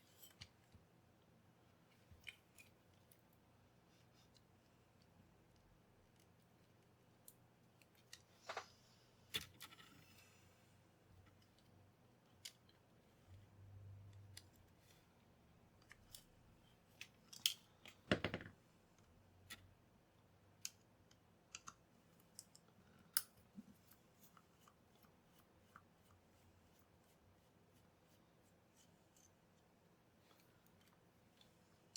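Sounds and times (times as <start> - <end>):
small clicks and taps of handling: 4.2 - 8.7, 15.8 - 16.3, 16.9 - 19.7, 20.5 - 26.2, 28.8 - 31.6.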